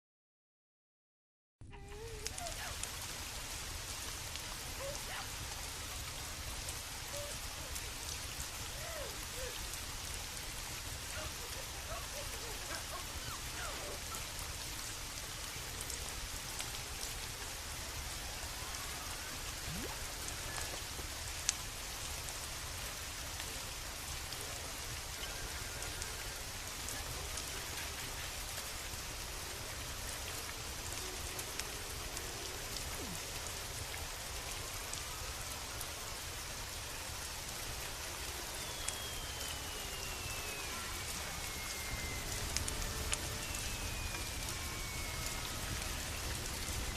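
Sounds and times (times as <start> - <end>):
rain pattering on surfaces: 1.6 - 46.9
faint downward sliding tone: 19.6 - 20.7, 38.2 - 46.9.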